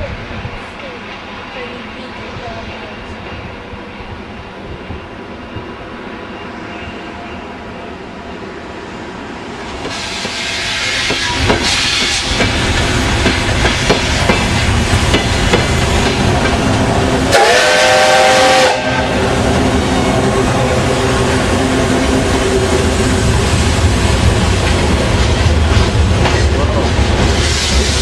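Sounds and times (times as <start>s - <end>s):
steam locomotive running: 0.0s - 28.0s
steam hiss: 9.7s - 16.6s, 27.3s - 28.0s
steam whistle blast: 17.3s - 19.3s.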